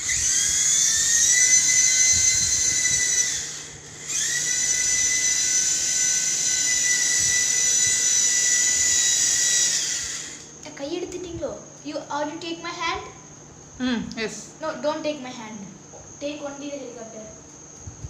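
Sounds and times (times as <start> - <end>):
toy helicopter motor whine: 0.0 - 10.5.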